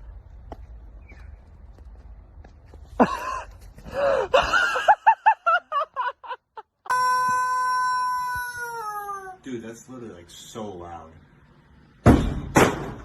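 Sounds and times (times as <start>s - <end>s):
long steady loud tone: 6.9s - 9.0s
high-pitched squealing cries: 6.9s - 9.4s.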